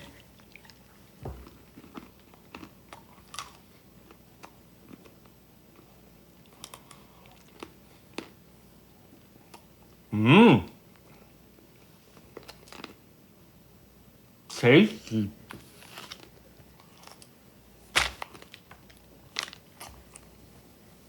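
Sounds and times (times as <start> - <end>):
person chewing peanuts: 0.0 - 8.4, 12.2 - 13.0, 16.1 - 17.3.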